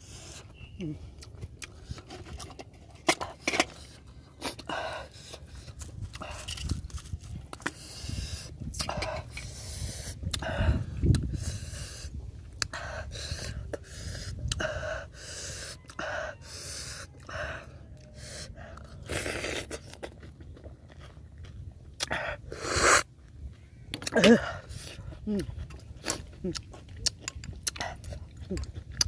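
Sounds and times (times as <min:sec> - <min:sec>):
man chewing and smacking: 0:00.0 - 0:29.0
man slurping oyster: 0:18.3 - 0:20.4, 0:22.0 - 0:23.1.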